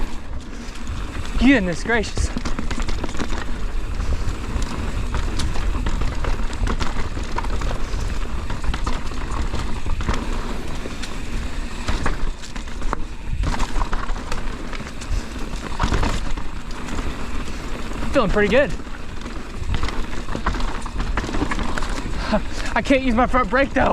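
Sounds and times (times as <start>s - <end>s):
wind rush on microphone: 0.0s - 14.2s
bike clicks and rattles: 0.0s - 23.9s
bike tyre noise: 0.0s - 23.9s.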